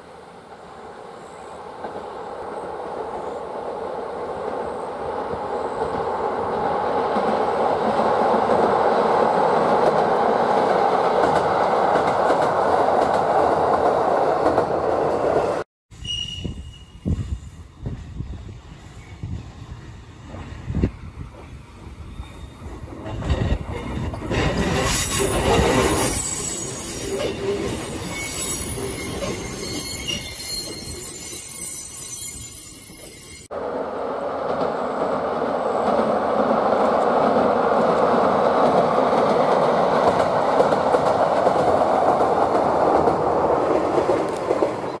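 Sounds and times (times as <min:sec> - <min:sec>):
train wheels squealing: 0:16.0 - 0:20.0, 0:21.5 - 0:23.5, 0:24.6 - 0:33.5.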